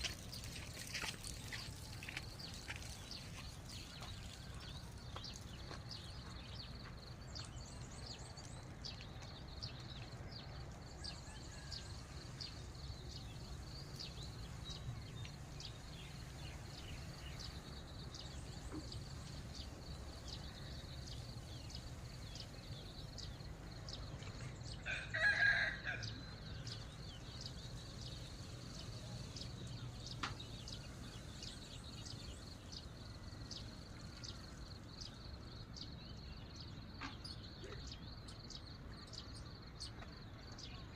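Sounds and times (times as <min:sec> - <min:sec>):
rooster crowing: 0:24.8 - 0:26.3.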